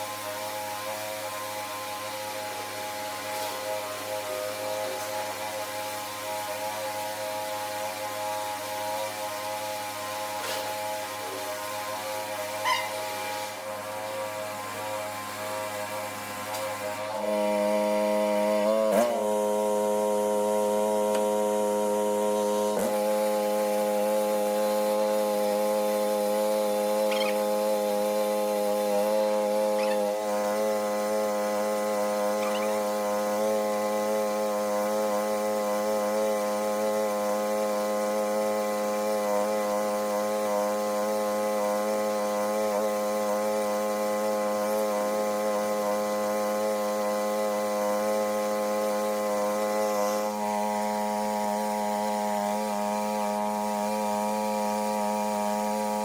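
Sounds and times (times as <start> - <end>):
small petrol engine running: 17.0 - 56.0.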